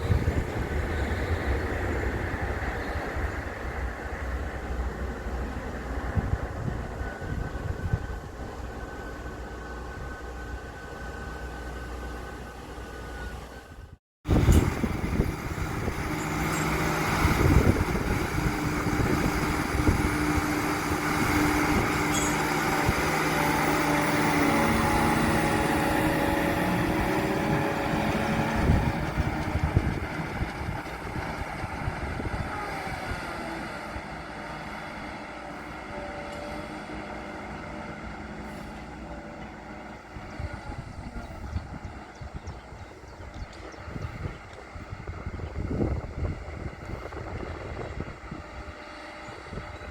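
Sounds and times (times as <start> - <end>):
rail engine drone: 0.0 - 49.9
wheels clattering over rails: 14.3 - 32.9.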